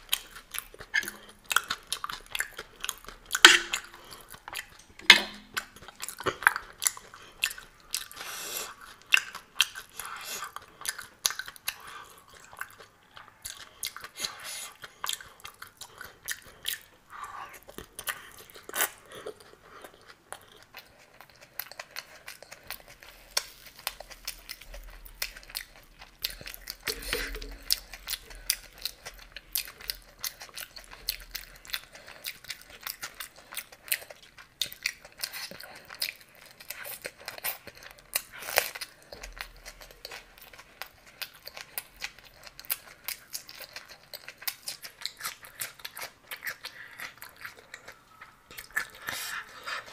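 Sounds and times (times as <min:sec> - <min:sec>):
wet chewing and crunching: 0:00.0 - 0:49.9.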